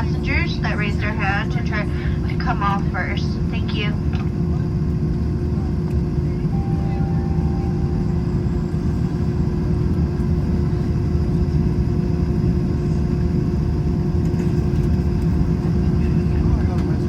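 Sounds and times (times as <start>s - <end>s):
jet engines idling rumble: 0.0s - 17.0s
steady cabin hum: 4.7s - 13.4s.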